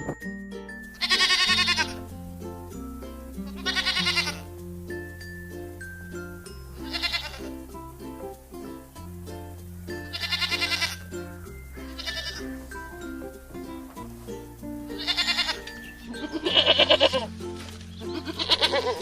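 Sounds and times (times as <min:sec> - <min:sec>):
background music with bass: 0:00.0 - 0:19.0
goats bleating: 0:01.0 - 0:02.0, 0:03.5 - 0:04.5, 0:06.8 - 0:07.6, 0:10.0 - 0:11.0, 0:11.8 - 0:12.7, 0:15.0 - 0:17.3, 0:18.1 - 0:19.0.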